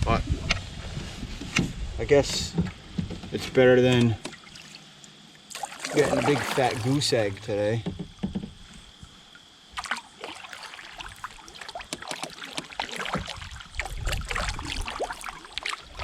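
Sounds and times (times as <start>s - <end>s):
small splashes and ticks: 3.9s - 7.7s, 8.8s - 16.0s
water lapping against a kayak: 4.1s - 16.0s.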